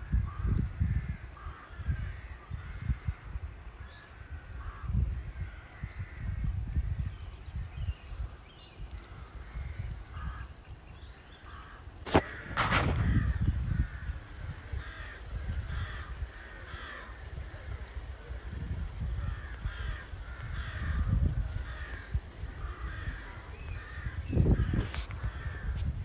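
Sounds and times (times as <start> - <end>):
bird cawing: 9.0 - 17.4, 19.2 - 25.8.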